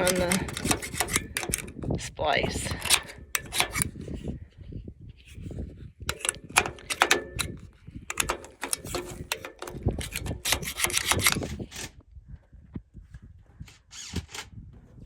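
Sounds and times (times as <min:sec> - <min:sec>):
metal blades scraped clean: 0:00.0 - 0:01.9, 0:02.7 - 0:04.0, 0:06.1 - 0:11.5.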